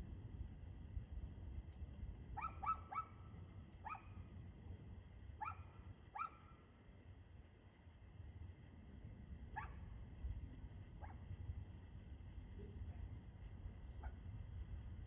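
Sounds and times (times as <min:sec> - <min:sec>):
steady low rumble: 0:00.0 - 0:15.0
dog barking: 0:02.4 - 0:03.2, 0:03.8 - 0:04.2, 0:05.4 - 0:06.5, 0:09.6 - 0:09.9, 0:11.0 - 0:11.2, 0:14.0 - 0:14.2.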